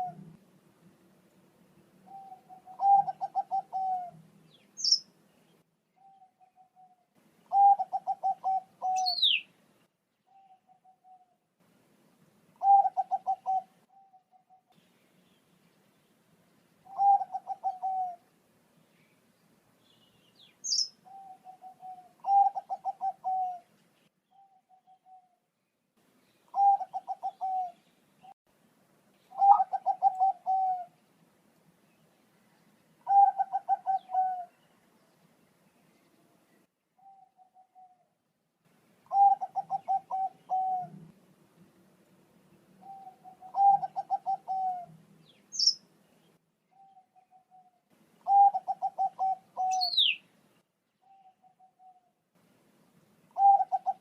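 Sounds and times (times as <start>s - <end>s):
dove cooing: 0.0s - 0.4s, 2.0s - 4.2s, 6.0s - 9.4s, 12.6s - 14.7s, 16.8s - 18.2s, 20.7s - 23.7s, 24.4s - 25.4s, 26.5s - 27.8s, 29.3s - 31.0s, 33.0s - 34.6s, 37.0s - 38.1s, 39.1s - 41.2s, 42.8s - 45.0s, 46.8s - 50.2s, 51.0s - 52.1s, 53.4s - 54.0s
high bird chirp: 2.1s - 5.1s, 7.5s - 9.5s, 19.8s - 23.5s, 45.3s - 45.8s, 48.3s - 50.2s.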